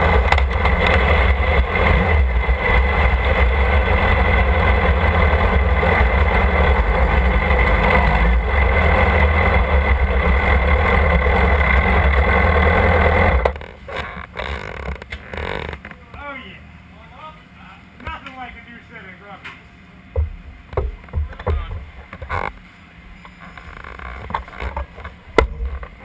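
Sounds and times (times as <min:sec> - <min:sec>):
motorcycle engine running: 0:00.0 - 0:16.4.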